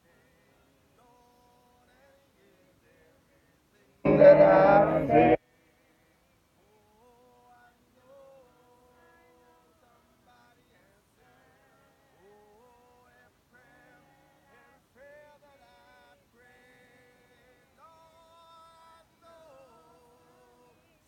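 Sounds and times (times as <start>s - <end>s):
congregation singing a hymn: 4.0s - 5.4s.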